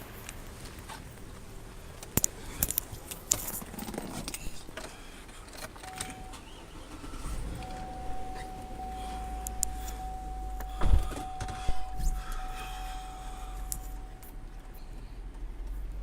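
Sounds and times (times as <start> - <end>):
rattle: 0.8 - 16.0
steady high tone: 5.8 - 14.7
low rumble: 6.0 - 15.9.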